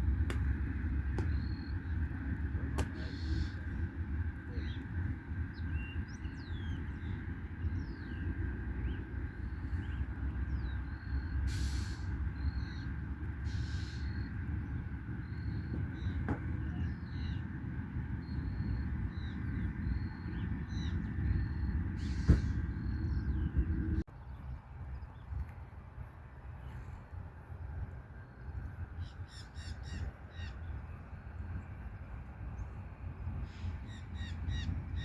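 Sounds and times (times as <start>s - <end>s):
steady low rumble: 0.0s - 35.0s
small birds chirping: 4.4s - 17.6s, 18.2s - 25.6s
short hissing bursts: 11.5s - 12.1s.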